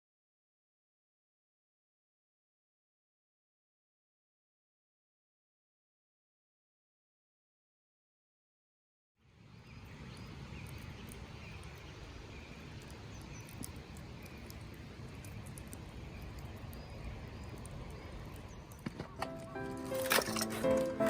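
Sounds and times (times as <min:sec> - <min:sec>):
faint chirps: 0:09.4 - 0:21.0
small high ticks: 0:10.1 - 0:21.0.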